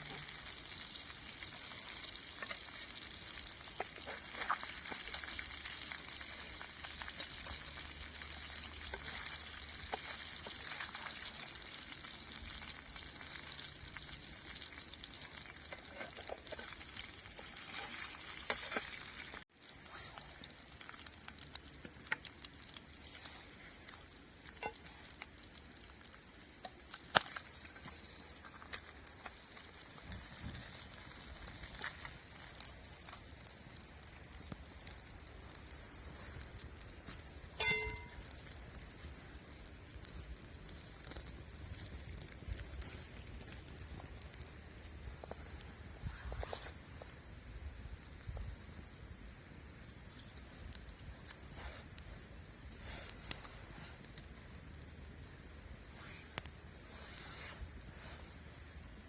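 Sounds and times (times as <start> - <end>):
fish sizzling over fire: 0.0 - 59.0.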